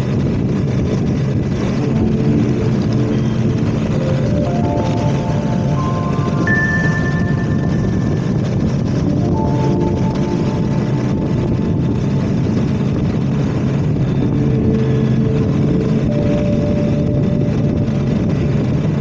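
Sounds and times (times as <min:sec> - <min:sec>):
motorcycle engine running: 0:00.0 - 0:19.0
wind and road noise: 0:00.0 - 0:19.0.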